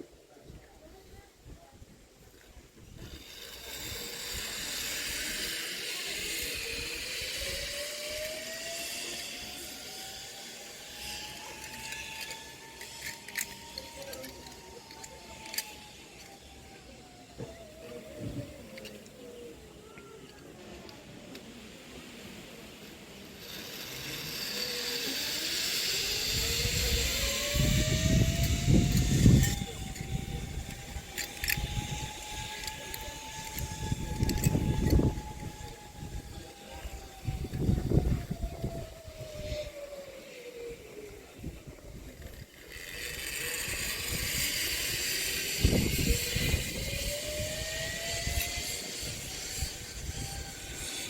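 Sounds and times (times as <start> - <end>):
zip line trolley hissing on cable: 0.0 - 51.0
rising whine: 2.8 - 51.0
wind rushing over microphone: 26.0 - 39.8, 43.0 - 51.0.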